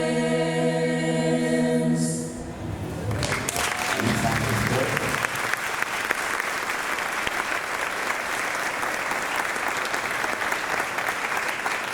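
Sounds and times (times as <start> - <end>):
audience applauding: 2.8 - 11.9.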